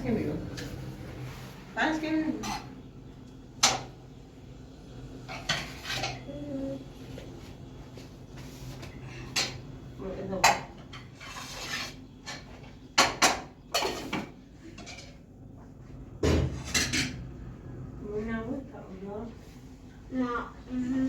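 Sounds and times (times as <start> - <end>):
dishes and utensils clinking: 2.3 - 2.8, 5.3 - 6.4, 10.4 - 15.2, 16.2 - 17.2.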